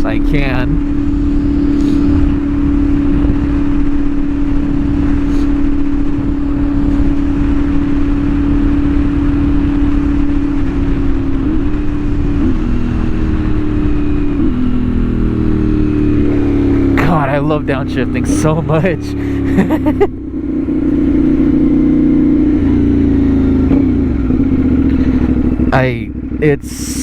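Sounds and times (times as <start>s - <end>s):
wind buffeting microphone: 0.0s - 17.0s
motorcycle engine cruising: 0.0s - 27.0s.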